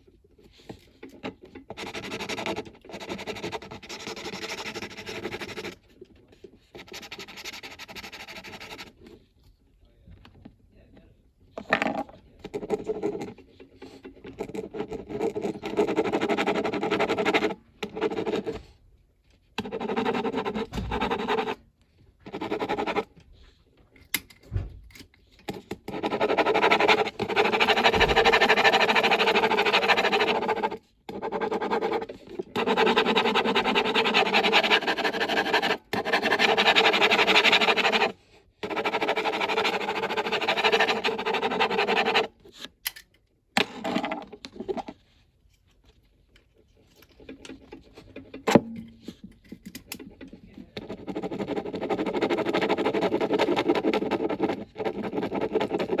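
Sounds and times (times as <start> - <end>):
crayon scratching on paper: 1.2 - 6.0, 6.7 - 9.2, 11.8 - 18.7, 19.6 - 21.6, 22.2 - 23.2, 25.8 - 42.5, 50.1 - 56.0.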